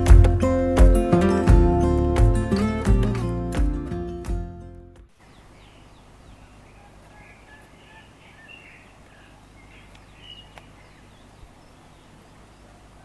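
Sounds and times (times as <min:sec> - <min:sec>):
faint birds chirping: 0:05.1 - 0:13.0.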